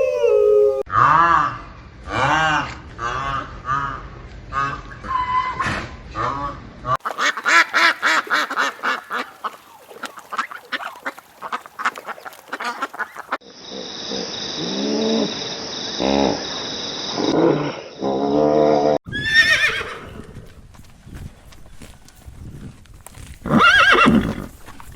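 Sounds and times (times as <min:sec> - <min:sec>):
ducks quacking: 0:07.0 - 0:13.4.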